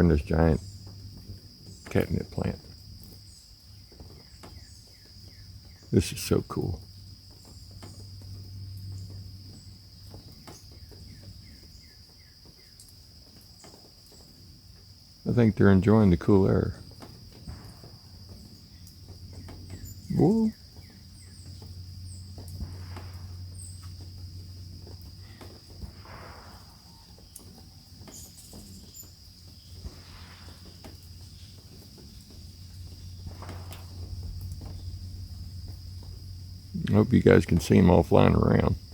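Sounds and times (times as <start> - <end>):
high-pitched insect chorus: 0.0 - 38.9
bird chirping: 17.4 - 24.1, 24.9 - 38.8
low steady hum: 17.4 - 38.9.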